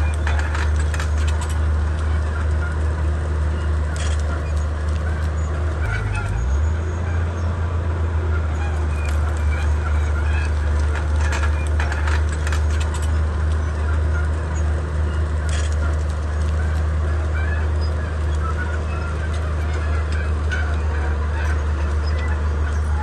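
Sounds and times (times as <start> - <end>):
bulldozer diesel engine running: 0.0 - 23.0
sharp cracks and knocks: 0.1 - 2.2.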